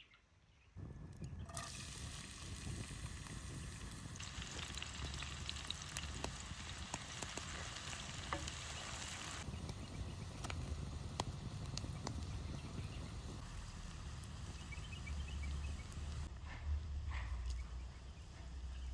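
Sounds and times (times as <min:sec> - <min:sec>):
fire crackles: 0:00.8 - 0:16.4
food sizzling in a pan: 0:01.5 - 0:16.3.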